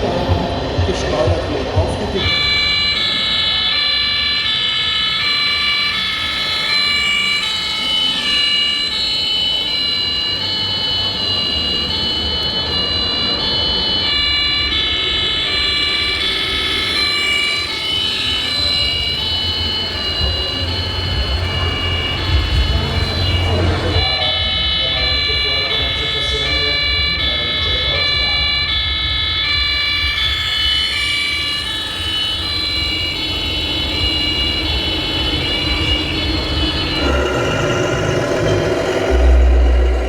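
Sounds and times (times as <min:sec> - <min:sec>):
electronic siren-like tones: 0:00.0 - 0:40.0
low rumble: 0:19.4 - 0:24.2, 0:32.4 - 0:40.0.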